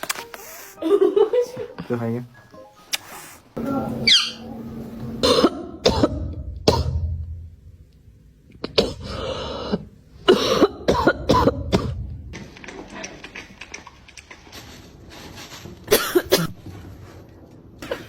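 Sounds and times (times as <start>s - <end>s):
person coughing: 5.2s - 7.0s, 8.6s - 12.0s, 15.9s - 16.6s.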